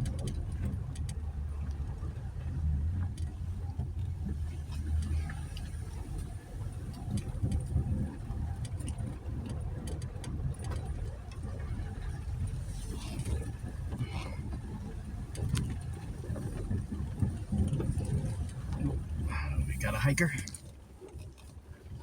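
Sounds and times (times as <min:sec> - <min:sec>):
engine and tyres rumbling: 0:00.0 - 0:19.8.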